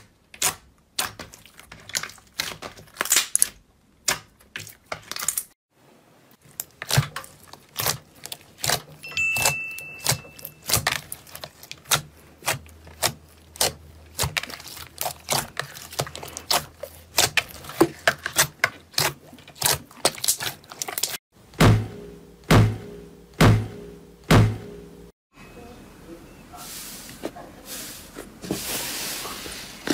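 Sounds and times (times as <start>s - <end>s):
heavy thuds: 21.6s - 25.0s.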